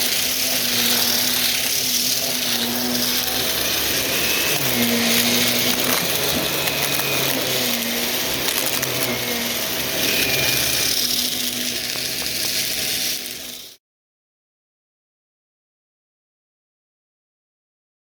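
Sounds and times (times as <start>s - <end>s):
vacuum cleaner running: 0.0s - 13.8s.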